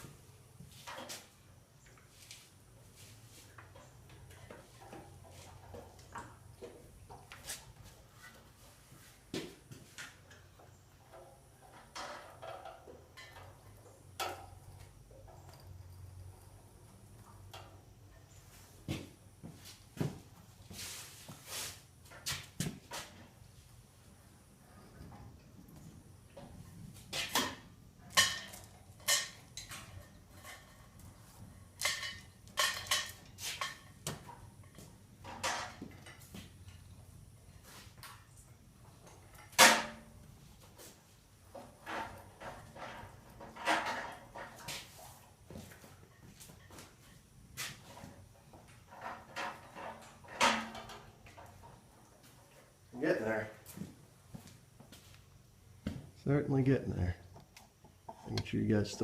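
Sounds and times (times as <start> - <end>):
metallic knocks and clatters: 10.0 - 16.6, 26.3 - 36.9, 39.0 - 40.3, 41.5 - 45.0, 47.8 - 52.4.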